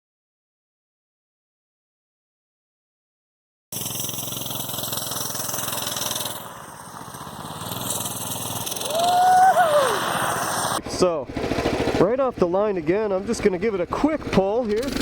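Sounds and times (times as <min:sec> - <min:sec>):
mini bike engine revving: 0:03.8 - 0:15.0.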